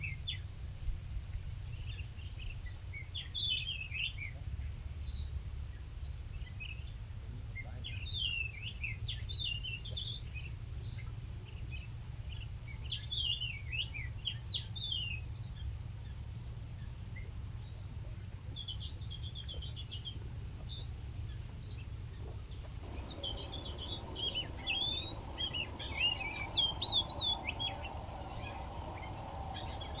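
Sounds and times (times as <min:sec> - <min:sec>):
songbirds chirping: 0:18.6 - 0:30.0
low background rumble: 0:22.5 - 0:30.0.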